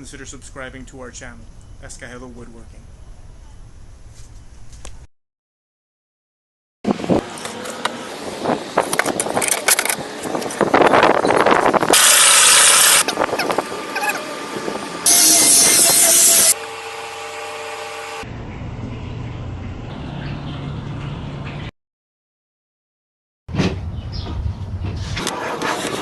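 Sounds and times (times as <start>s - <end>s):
power tool bursts: 11.9s - 13.1s, 15.0s - 18.2s.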